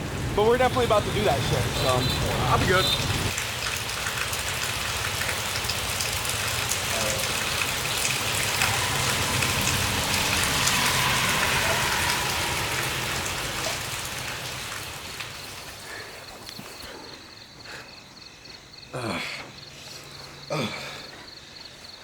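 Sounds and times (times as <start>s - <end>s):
rain hissing: 0.0s - 16.8s.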